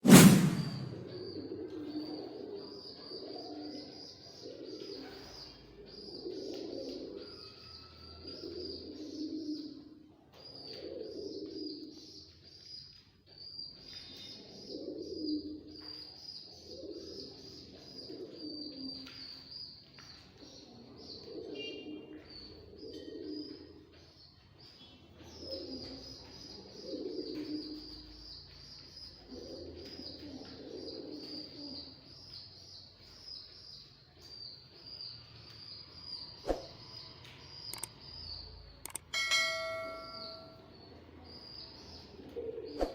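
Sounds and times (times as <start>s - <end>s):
pigeons cooing: 1.2s - 7.4s, 8.2s - 12.1s, 14.3s - 16.0s, 16.6s - 19.1s, 20.8s - 23.8s, 25.3s - 28.1s, 29.2s - 32.1s, 41.8s - 42.9s
high-pitched chirping: 38.9s - 40.6s.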